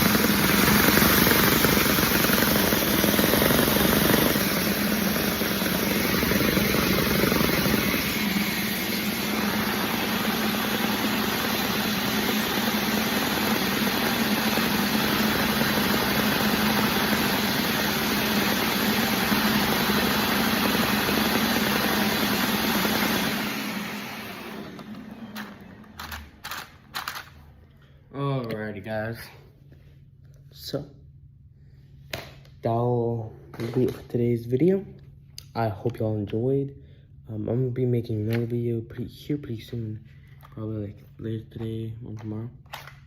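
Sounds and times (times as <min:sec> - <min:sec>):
toy engine mechanical whir: 0:00.0 - 0:07.9, 0:25.4 - 0:27.3.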